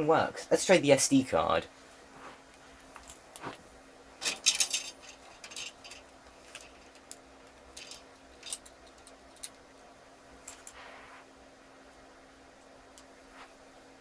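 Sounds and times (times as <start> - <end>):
faint steady hum: 0.0 - 14.0
rustling of small objects: 4.2 - 9.6.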